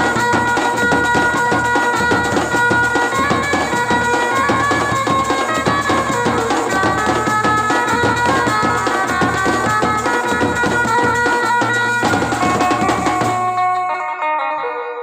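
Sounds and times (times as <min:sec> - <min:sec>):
fast dense drumming: 0:00.0 - 0:13.6
wind instrument melody: 0:00.0 - 0:15.0.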